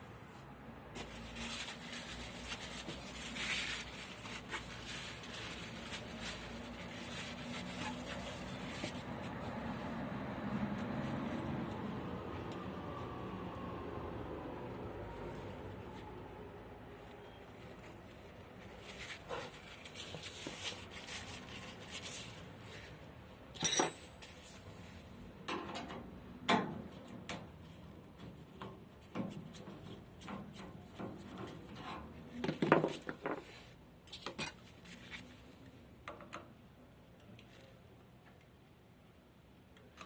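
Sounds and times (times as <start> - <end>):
metal tools clinking and knocking: 23.6 - 24.1.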